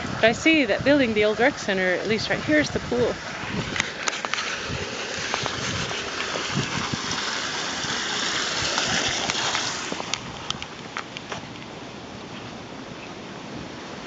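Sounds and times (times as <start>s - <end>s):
waterfall splashing: 0.0s - 11.2s.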